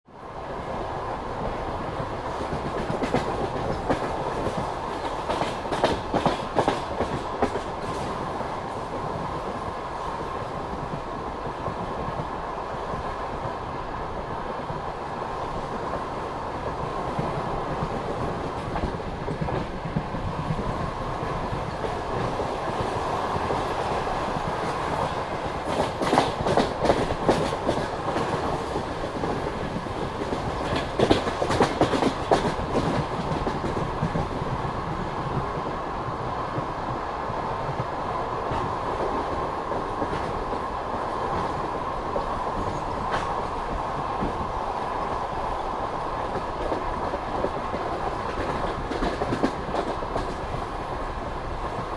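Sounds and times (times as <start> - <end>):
train wheels rumbling on rail: 0.1 - 51.9
wheels clacking over rail joints: 21.8 - 34.4.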